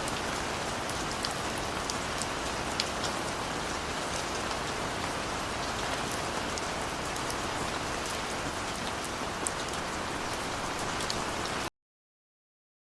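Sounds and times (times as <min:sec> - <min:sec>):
steady rain falling: 0:00.0 - 0:11.7.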